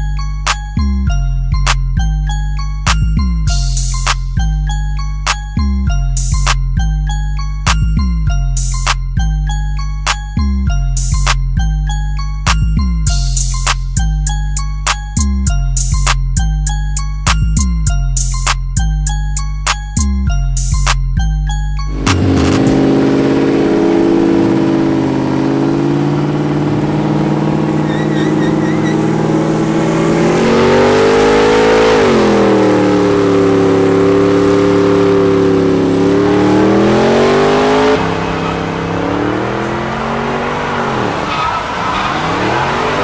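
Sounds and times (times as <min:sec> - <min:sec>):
vehicle engine at high revs: 0:21.9 - 0:43.0.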